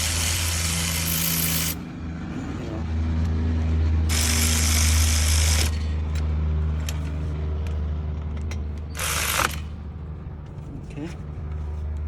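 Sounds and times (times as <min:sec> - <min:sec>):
power tool driving bolt: 0:09.0 - 0:09.7.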